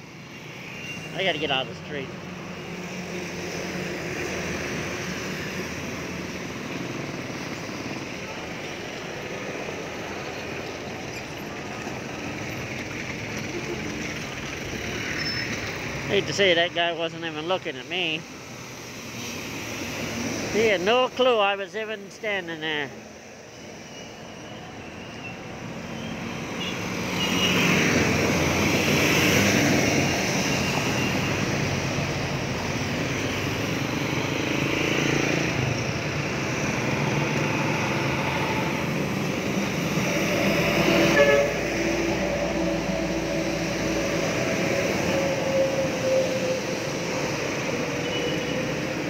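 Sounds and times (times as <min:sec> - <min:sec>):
traffic noise: 0:00.0 - 0:49.0
steady engine tone: 0:23.5 - 0:49.0
vehicle passing close: 0:26.2 - 0:49.0.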